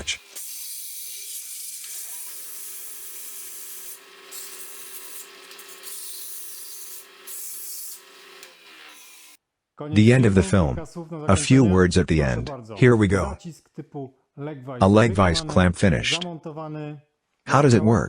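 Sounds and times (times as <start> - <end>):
lathe motor hum: 0.0 - 9.4.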